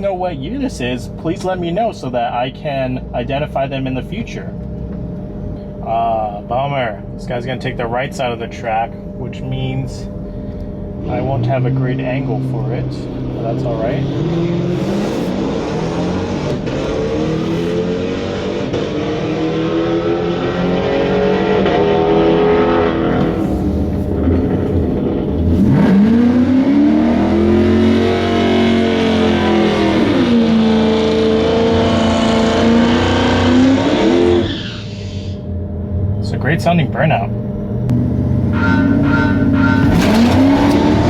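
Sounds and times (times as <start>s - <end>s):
truck engine revving: 11.0s - 35.3s, 37.4s - 41.0s.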